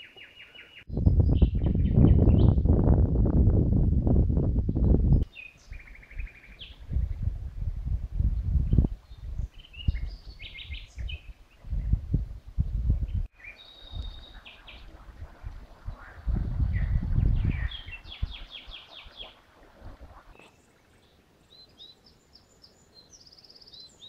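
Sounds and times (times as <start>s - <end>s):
songbirds trilling and chirping: 0.0s - 2.6s, 5.2s - 7.2s, 8.7s - 12.0s, 13.0s - 24.0s
wind rumbling on microphone: 0.9s - 20.6s.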